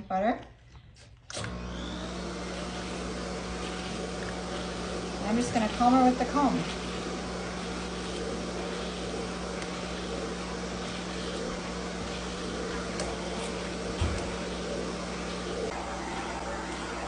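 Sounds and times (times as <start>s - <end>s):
vacuum motor humming: 1.3s - 17.0s.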